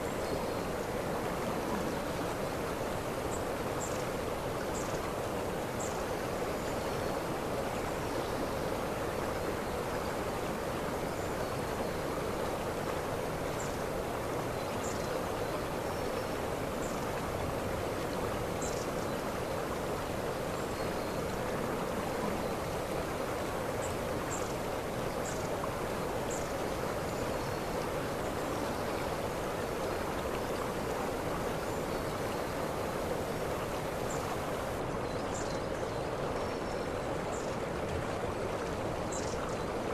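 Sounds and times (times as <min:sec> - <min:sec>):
waterfall rushing: 0:32.2 - 0:34.9.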